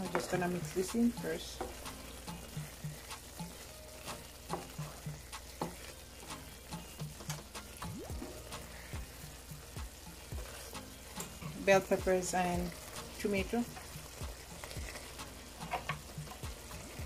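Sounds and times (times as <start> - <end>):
stirring scrapes and clicks: 0.0 - 7.9, 8.5 - 17.0
liver frying and sizzling: 0.0 - 17.0.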